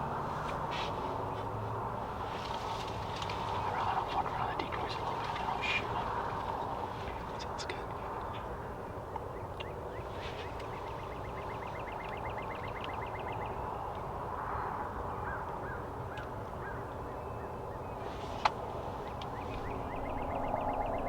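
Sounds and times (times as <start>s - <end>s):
wild turkeys calling softly: 3.4s - 14.1s, 15.2s - 21.0s
songbird fast trill: 9.6s - 13.8s, 19.0s - 21.0s.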